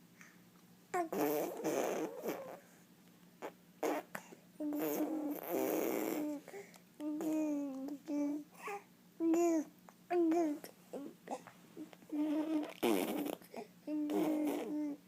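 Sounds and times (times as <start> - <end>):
child blowing raspberries: 12.2 - 13.5.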